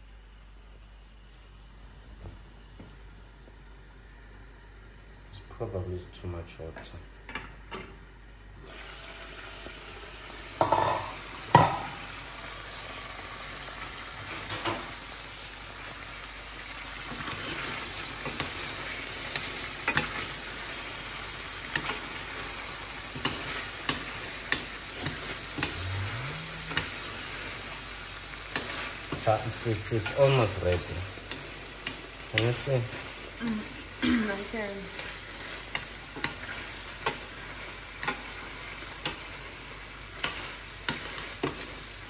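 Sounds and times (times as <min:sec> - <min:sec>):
food sizzling in a pan: 0:08.6 - 0:42.0
utensil clicking against pan: 0:23.2 - 0:25.8, 0:28.5 - 0:29.3, 0:30.0 - 0:32.7, 0:34.9 - 0:37.3, 0:38.0 - 0:38.3, 0:40.2 - 0:41.7.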